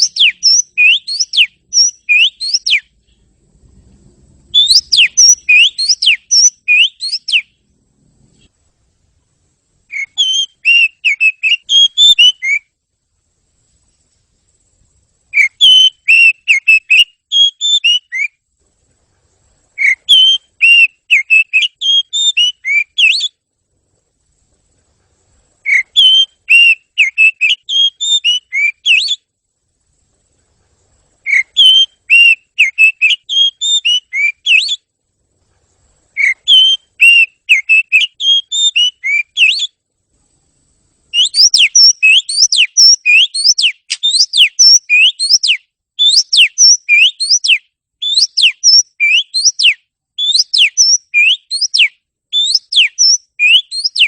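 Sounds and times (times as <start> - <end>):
bird song whistled notes: 0.0 - 3.3, 4.3 - 7.7, 9.9 - 12.8, 13.8 - 18.4, 19.7 - 23.5, 25.6 - 29.4, 31.2 - 34.9, 36.1 - 39.8, 41.1 - 54.0.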